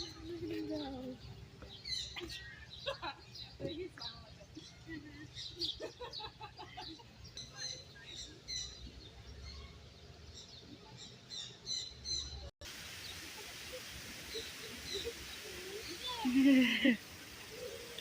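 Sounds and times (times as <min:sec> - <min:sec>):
birds chirping: 0:00.0 - 0:18.0
steady background hiss: 0:11.8 - 0:18.0.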